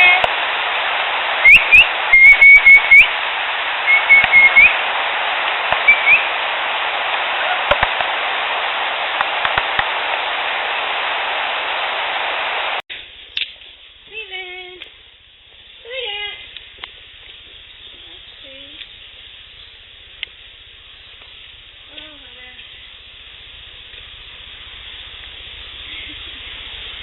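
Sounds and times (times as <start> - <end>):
recorder hiss: 0.0 - 27.0
high rising whistled chirps: 1.4 - 3.2, 3.8 - 4.8, 5.8 - 6.4
sharp snapping pops: 4.1 - 4.7, 5.4 - 6.2, 7.7 - 8.2, 9.2 - 10.0, 13.3 - 13.7
faint clicks: 21.2 - 22.8.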